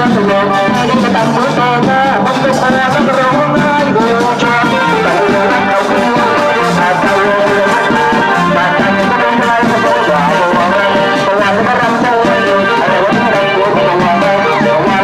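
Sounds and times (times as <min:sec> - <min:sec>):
drums: 0:00.0 - 0:15.0
wind instruments melody: 0:00.0 - 0:15.0.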